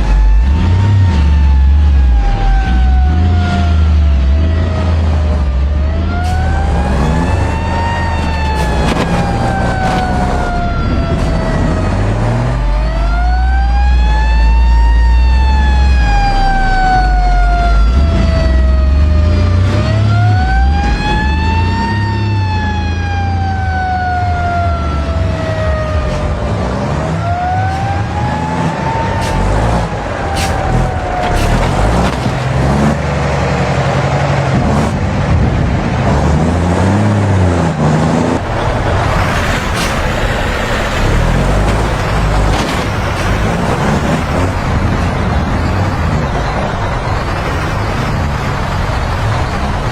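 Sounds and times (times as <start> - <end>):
heavy vehicle engines: 0.0 - 49.9
road noise: 0.0 - 49.9
wailing emergency siren: 0.0 - 49.9.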